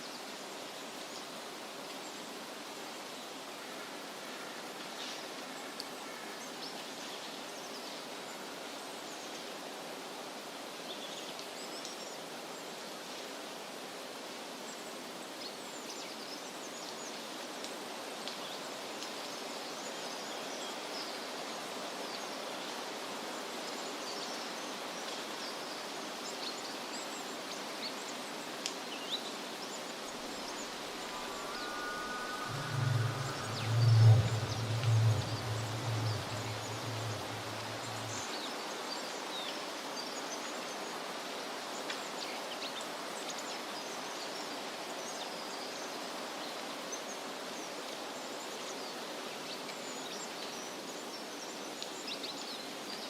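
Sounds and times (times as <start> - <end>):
steady rushing hiss: 29.5 - 38.5
low hum: 30.2 - 38.3
faint high chirps: 30.3 - 38.3
steady high tone: 30.7 - 38.2.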